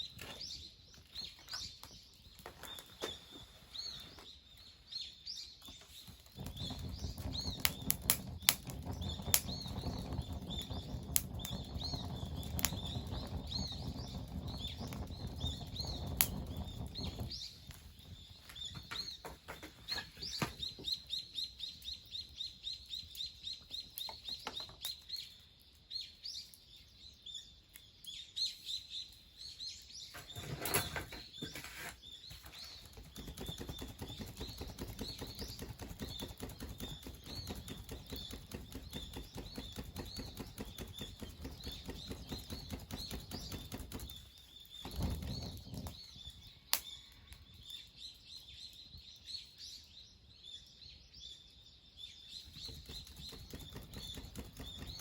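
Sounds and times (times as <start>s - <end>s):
small birds chirping: 0.0s - 55.0s
dense low rustle: 6.4s - 19.1s.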